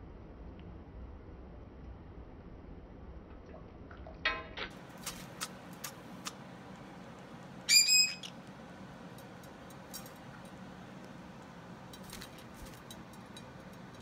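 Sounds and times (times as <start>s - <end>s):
bird calling: 7.6s - 8.4s.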